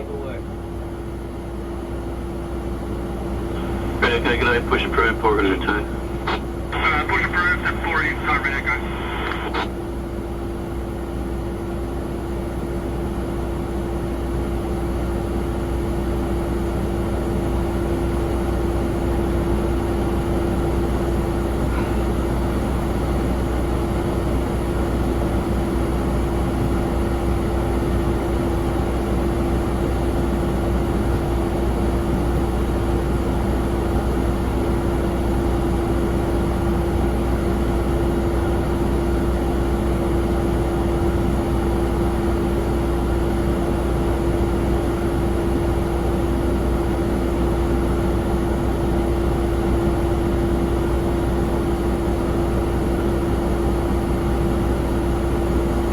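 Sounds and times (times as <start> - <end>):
jet engine low rumble: 0.0 - 55.9
jet engine whine: 3.0 - 14.4.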